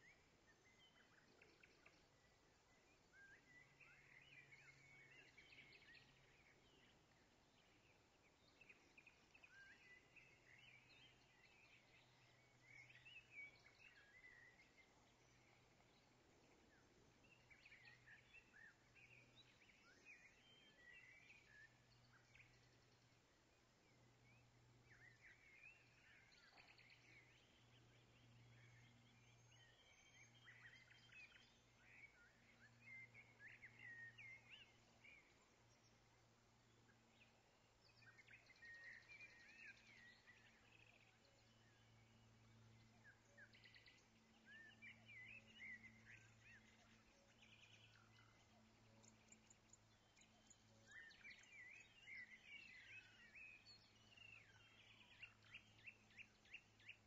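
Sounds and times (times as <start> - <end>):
faint low hum: 0.0 - 57.0
small birds chirping: 0.0 - 57.0.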